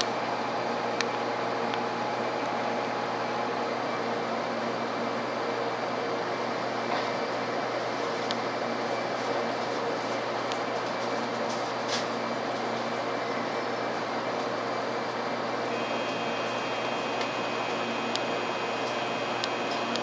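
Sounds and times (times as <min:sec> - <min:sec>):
train running noise: 0:00.0 - 0:20.0
faint high steady tone: 0:15.7 - 0:20.0.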